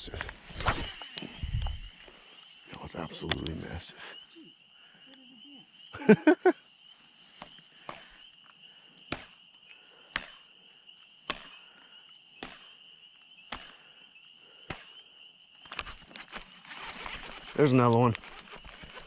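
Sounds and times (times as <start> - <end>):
insects trilling: 0.0 - 19.0
sharp clicks: 3.2 - 3.6, 15.6 - 19.0.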